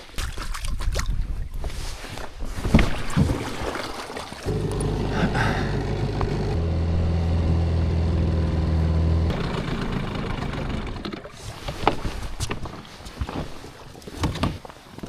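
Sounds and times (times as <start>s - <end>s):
engine running: 4.5s - 11.3s.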